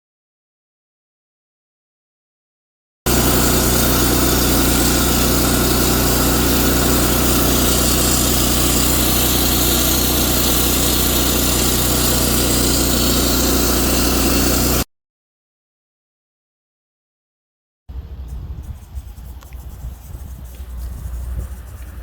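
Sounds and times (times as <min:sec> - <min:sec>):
engine running steadily: 0:03.1 - 0:14.8, 0:17.9 - 0:22.0.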